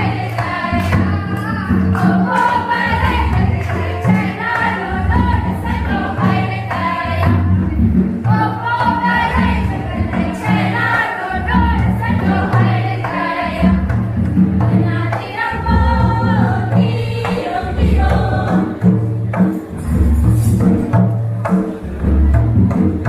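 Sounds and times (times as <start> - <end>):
voices singing together: 0.0 - 20.6
low drum beat: 0.0 - 23.0.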